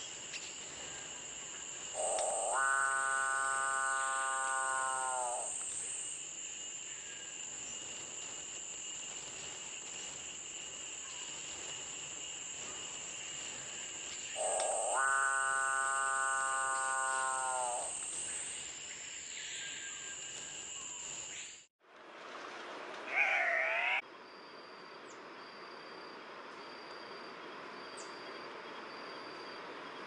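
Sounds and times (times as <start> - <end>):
high-pitched insect drone: 0.0 - 21.7
bird giving low mooing call: 2.0 - 5.5, 14.4 - 17.9.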